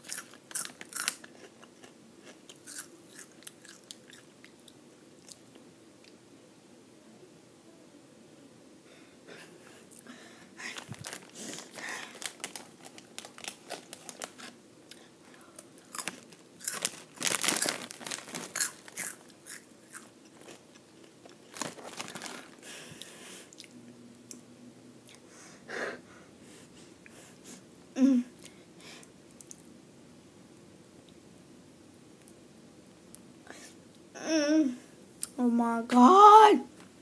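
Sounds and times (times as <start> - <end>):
foil snack bag crinkling: 0.0 - 1.4, 10.6 - 14.6, 15.8 - 22.8
crunching snacks: 0.0 - 4.3, 10.7 - 14.6, 15.8 - 22.6.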